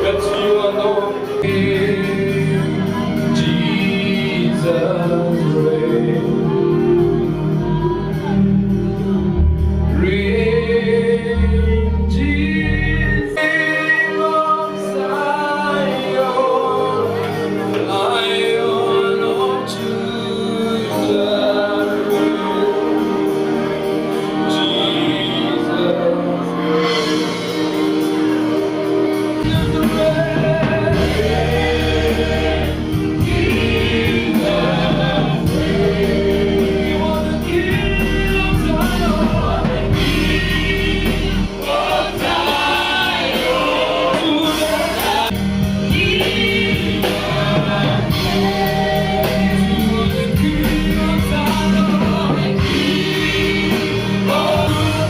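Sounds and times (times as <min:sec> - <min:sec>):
deep bass line: 0:00.0 - 0:13.3, 0:29.4 - 0:55.0
gospel voices singing: 0:00.0 - 0:55.0.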